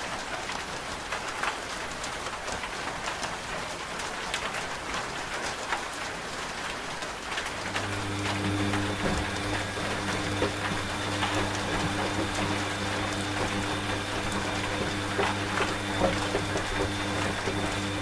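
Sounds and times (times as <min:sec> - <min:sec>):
steady rain: 0:00.0 - 0:18.0
raindrops ticking: 0:00.1 - 0:18.0
washing machine humming: 0:07.2 - 0:18.0.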